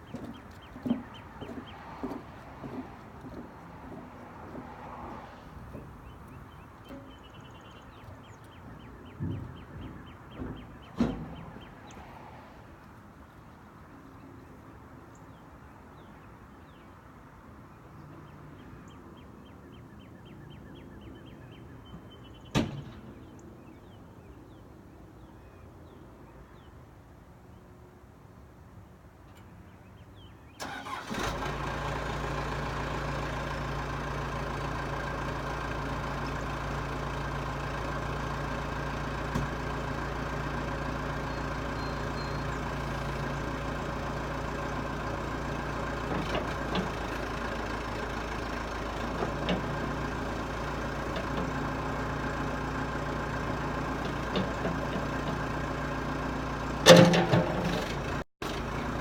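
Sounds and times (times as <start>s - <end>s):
diesel engine starting and idling: 0.0s - 12.0s, 30.6s - 59.0s
loud metal clank: 56.9s - 57.9s.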